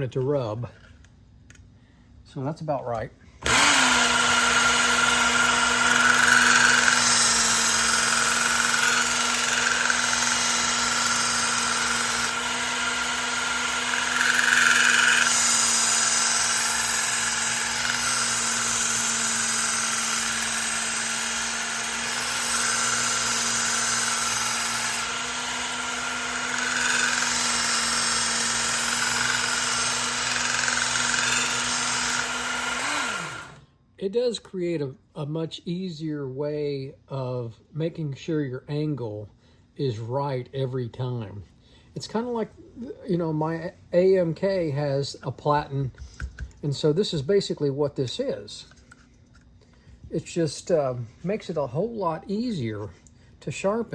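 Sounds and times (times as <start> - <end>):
belt sharpener motor hum: 3.4 - 33.6
knife grinding on abrasive belt: 3.5 - 33.3.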